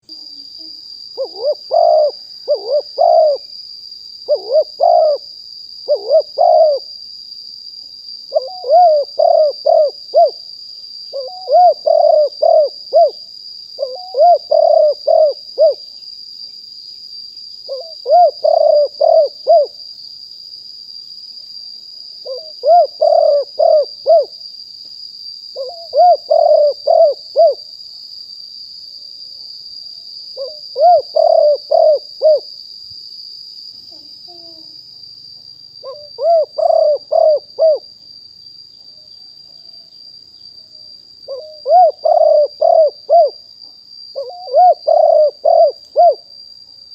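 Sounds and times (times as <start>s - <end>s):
dove cooing: 0.6s - 3.5s, 4.3s - 6.9s, 8.3s - 10.4s, 11.1s - 13.2s, 13.8s - 15.8s, 17.7s - 19.8s, 22.2s - 24.3s, 25.6s - 27.6s, 30.4s - 32.5s, 33.9s - 34.8s, 35.8s - 37.8s, 41.3s - 43.4s, 44.2s - 46.2s.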